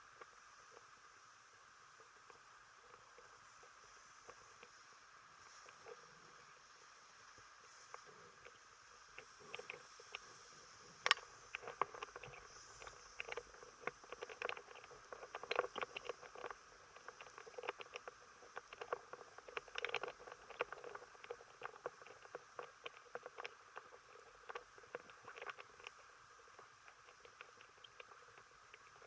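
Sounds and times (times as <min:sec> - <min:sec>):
faint steady hiss: 0:00.0 - 0:29.0
light clicks and taps: 0:11.0 - 0:29.0.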